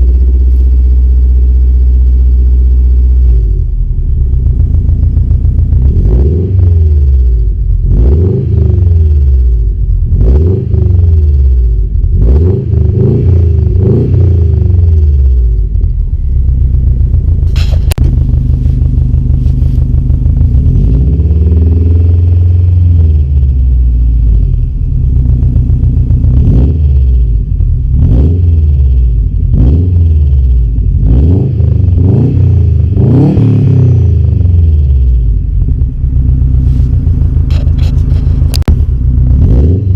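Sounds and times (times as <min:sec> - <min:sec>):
car engine revving: 0:00.0 - 0:39.9
sharp click: 0:17.5 - 0:18.1.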